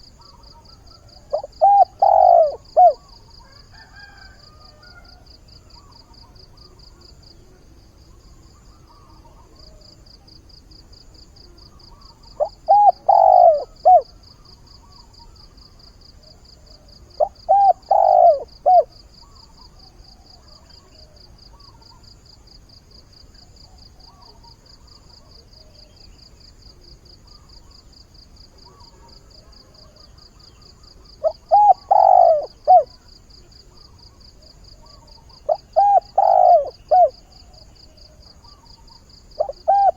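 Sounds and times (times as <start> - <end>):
dove cooing: 0.0 - 5.1, 11.7 - 14.3, 16.2 - 21.9, 28.6 - 39.9.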